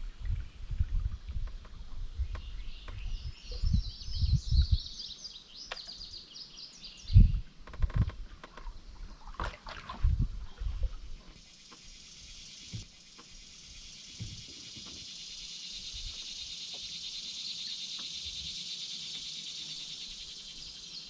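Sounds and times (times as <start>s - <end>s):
canoe and paddle thumps: 7.7s - 11.9s, 14.1s - 15.0s.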